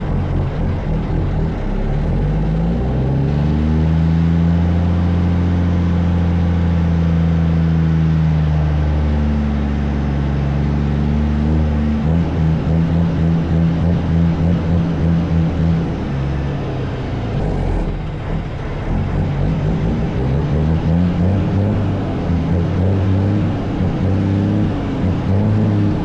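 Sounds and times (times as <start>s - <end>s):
truck diesel engine revving: 11.1s - 26.0s.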